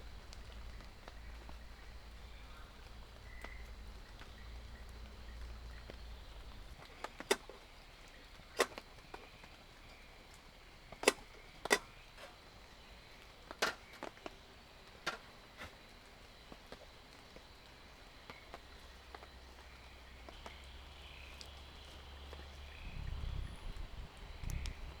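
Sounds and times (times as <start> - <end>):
sharp knocks and clicks: 11.0 - 12.4, 13.5 - 14.3.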